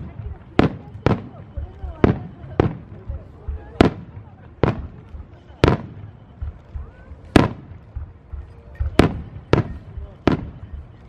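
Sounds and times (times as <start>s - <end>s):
faint low thuds: 0.0s - 11.0s
firework shells booming: 8.8s - 10.8s.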